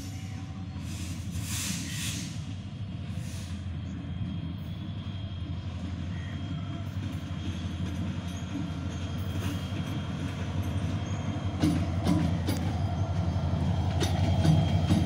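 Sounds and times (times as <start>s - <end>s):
locomotive engine drone: 0.0s - 15.0s
wheels clicking over rail joints: 6.9s - 15.0s.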